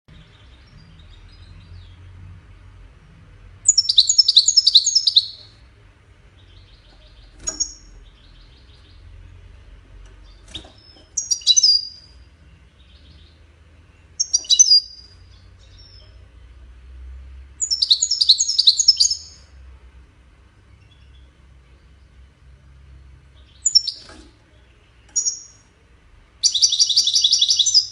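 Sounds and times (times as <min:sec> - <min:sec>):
goldfinch twittering trills: 0:10.2 - 0:12.1, 0:14.2 - 0:16.0, 0:23.5 - 0:24.1, 0:25.1 - 0:25.6, 0:26.4 - 0:27.9.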